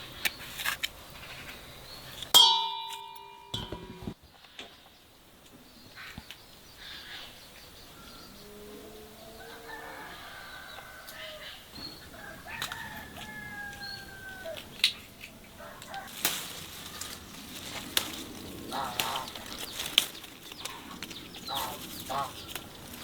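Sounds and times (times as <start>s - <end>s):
fowl calling: 8.0s - 23.0s
rooster crowing: 8.4s - 14.8s, 15.5s - 16.2s.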